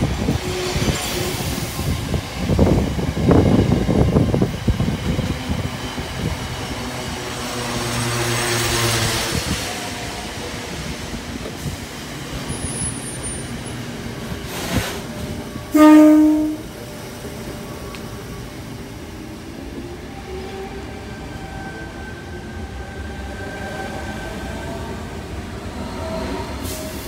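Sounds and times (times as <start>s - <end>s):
freight train rumbling and clattering: 0.0s - 22.8s
train horn blast: 15.7s - 16.7s.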